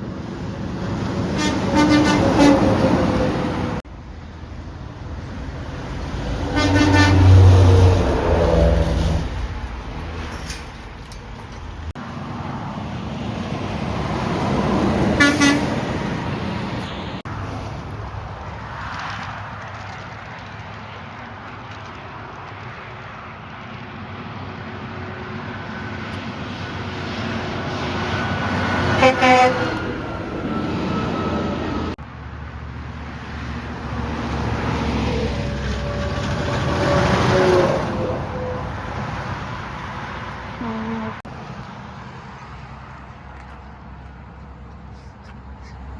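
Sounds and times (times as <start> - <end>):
truck passing: 0.0 - 45.9
truck horn blasts: 1.4 - 3.2, 6.4 - 9.2, 15.2 - 15.9, 28.8 - 30.1
vehicle driving past: 5.4 - 17.8.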